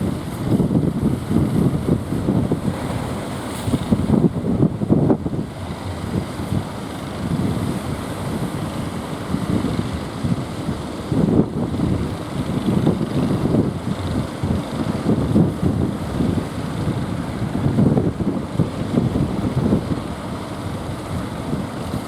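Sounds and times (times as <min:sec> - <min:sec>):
sea noise: 0:00.0 - 0:22.0
wind buffeting microphone: 0:00.0 - 0:22.0.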